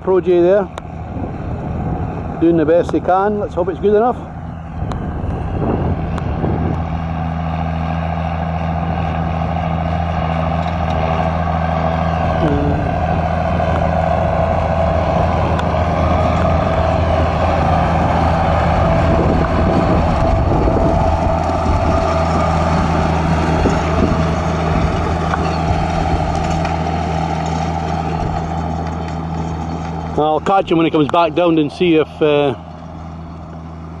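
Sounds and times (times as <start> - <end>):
wind buffeting: 0.0 - 7.6, 12.2 - 34.0
engine running steadily: 0.0 - 34.0.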